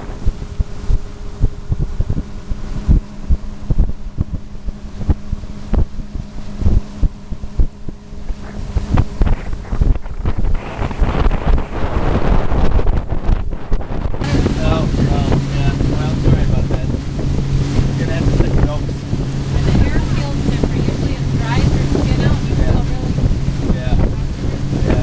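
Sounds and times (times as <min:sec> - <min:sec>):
boat motor running: 0:00.0 - 0:25.0
wind buffeting microphone: 0:00.0 - 0:25.0.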